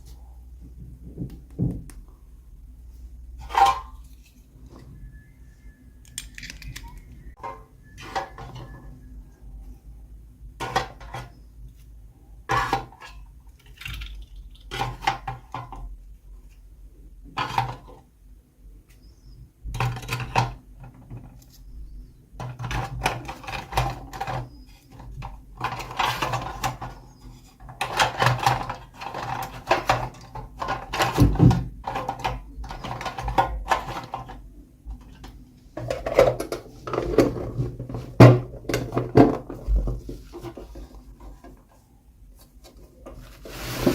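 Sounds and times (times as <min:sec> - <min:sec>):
plastic toy pieces clattering: 0:06.0 - 0:07.3, 0:13.5 - 0:15.7, 0:22.4 - 0:27.0.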